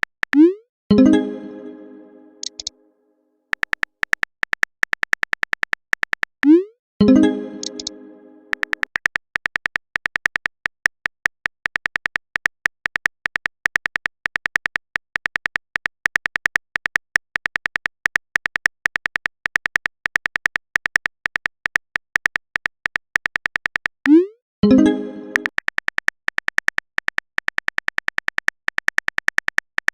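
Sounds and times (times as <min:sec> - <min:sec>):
phone keyboard clicks: 0:02.4 - 0:02.7, 0:03.5 - 0:06.6, 0:07.6 - 0:07.9, 0:08.5 - 0:24.0, 0:25.3 - 0:29.9.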